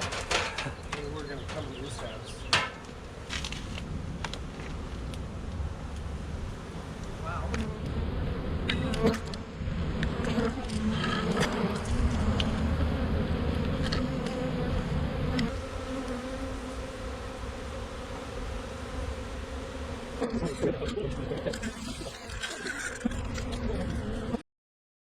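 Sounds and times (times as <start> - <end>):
bee swarm buzzing: 0.0 - 24.4.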